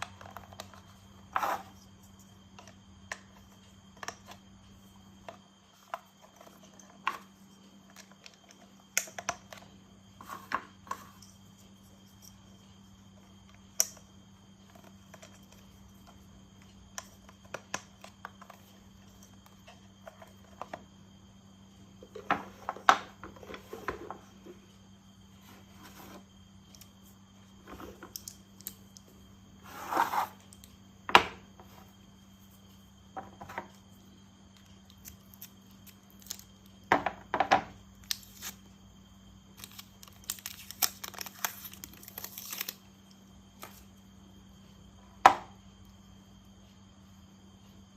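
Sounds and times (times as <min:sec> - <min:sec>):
faint steady hum: 0:00.0 - 0:47.9
plastic parts clicking and tapping: 0:05.2 - 0:09.7
packaging crinkling and tearing: 0:39.6 - 0:42.8.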